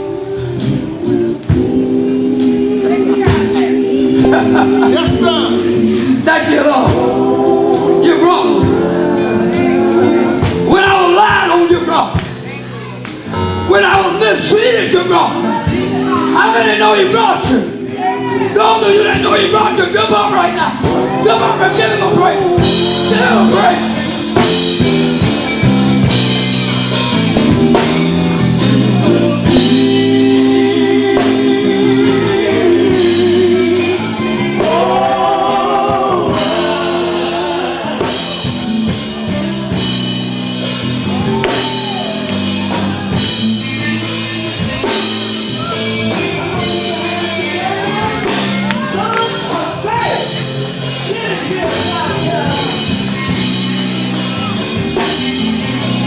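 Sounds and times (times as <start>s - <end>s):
lead singer singing: 0.0s - 11.8s, 15.0s - 26.2s, 28.4s - 40.2s
gospel band playing: 0.0s - 56.0s.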